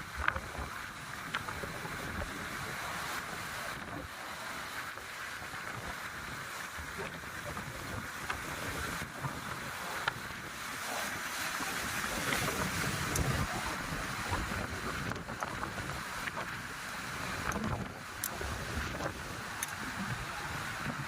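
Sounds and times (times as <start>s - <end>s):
sea surf on rocky shore: 0.0s - 21.0s
wind gusting against microphone: 0.0s - 21.0s.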